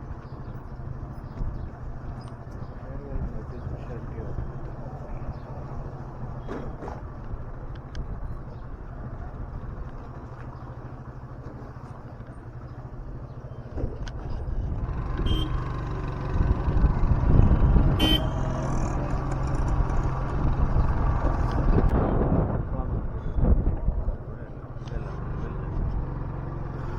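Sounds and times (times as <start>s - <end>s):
road and wind noise: 0.0s - 26.9s
motorbike engine: 0.1s - 23.1s, 24.0s - 26.9s
vehicle horn honk: 15.2s - 15.7s, 18.0s - 18.7s.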